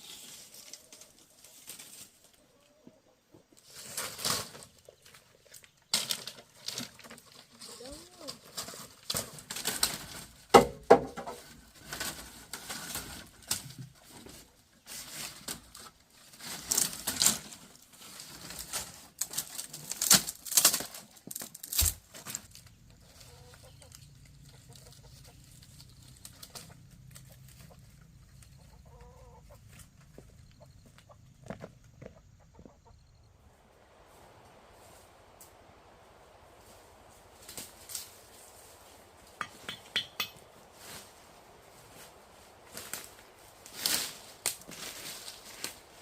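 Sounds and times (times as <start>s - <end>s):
rustling: 0.0s - 2.9s, 3.5s - 10.5s, 11.2s - 30.4s, 33.4s - 46.0s
chickens clucking: 0.3s - 3.8s, 22.6s - 46.0s
sharp knocks: 39.4s - 40.5s.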